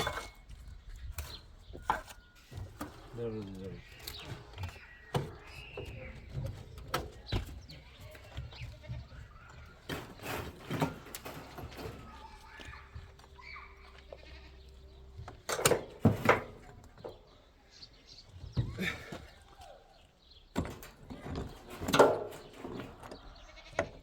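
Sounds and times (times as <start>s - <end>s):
sharp knocks and scrapes: 0.0s - 13.3s, 15.3s - 17.4s, 20.5s - 24.0s
livestock bleating: 13.4s - 14.9s, 23.4s - 24.0s.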